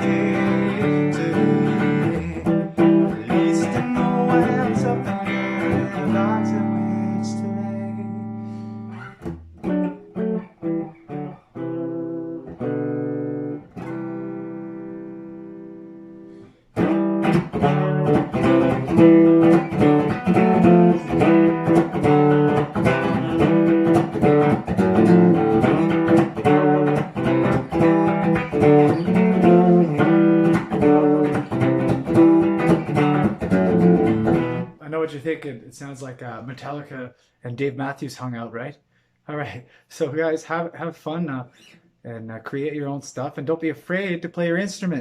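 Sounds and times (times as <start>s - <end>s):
guitar chords: 0.0s - 34.8s
rhythmic guitar strumming: 0.0s - 37.0s, 39.7s - 45.0s.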